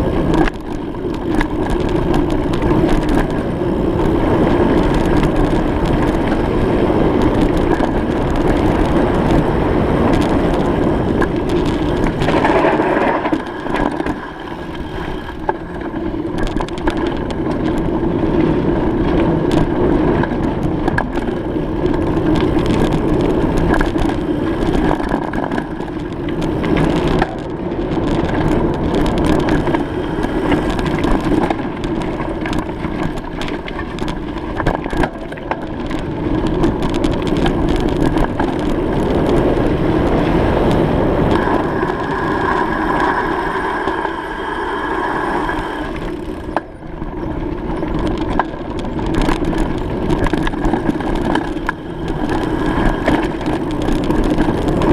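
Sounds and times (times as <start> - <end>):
crunching clicks and rattles: 0.0 - 44.9, 45.5 - 54.9
bicycle rolling over rough ground: 0.0 - 54.9.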